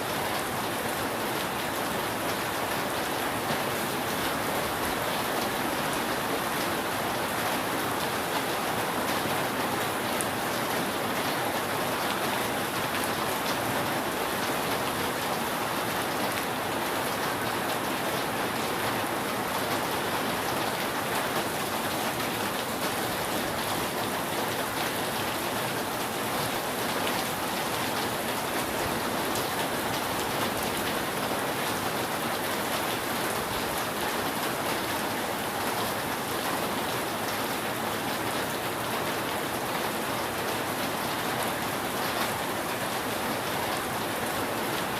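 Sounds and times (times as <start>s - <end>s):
rain on a roof: 0.0s - 44.9s.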